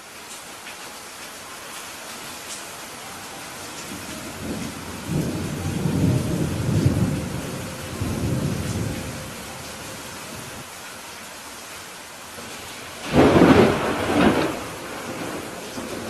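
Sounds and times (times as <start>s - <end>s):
steady rain: 0.0s - 16.0s
thunder rumbling: 3.5s - 10.7s, 12.4s - 16.0s.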